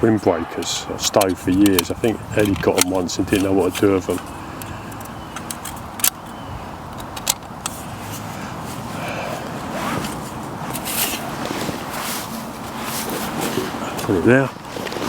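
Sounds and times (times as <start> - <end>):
steady background hiss: 0.0 - 15.0
sharp metal clicks: 0.5 - 7.8.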